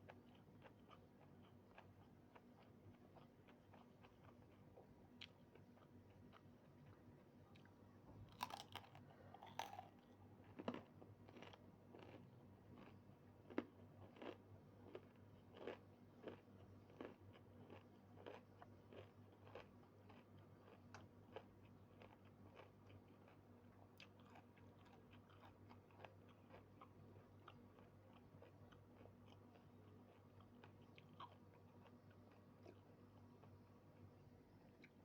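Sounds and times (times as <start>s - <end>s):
chewing and biting: 0.1s - 6.5s, 8.3s - 34.1s.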